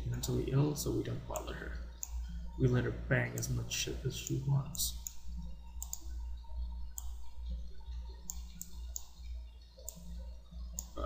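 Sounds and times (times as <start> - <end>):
steady low hum: 0.0 - 11.0
computer mouse clicking: 1.3 - 2.4, 4.2 - 6.1, 6.9 - 7.3, 8.2 - 11.0.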